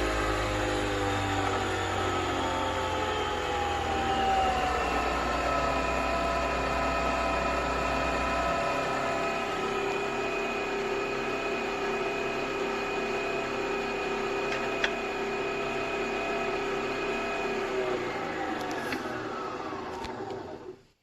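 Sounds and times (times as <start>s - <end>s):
coffee machine whirring: 0.0s - 20.8s.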